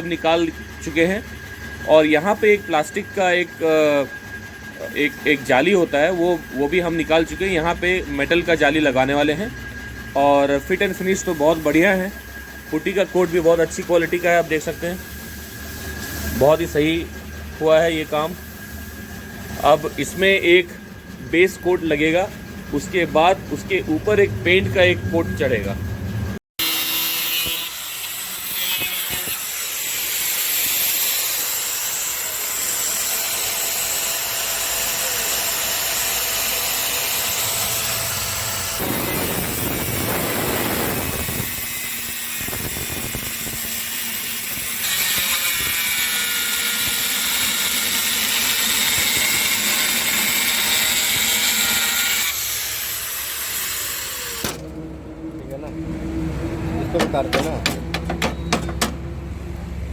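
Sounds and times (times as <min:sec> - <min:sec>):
power tool hissing: 0:26.6 - 0:54.7.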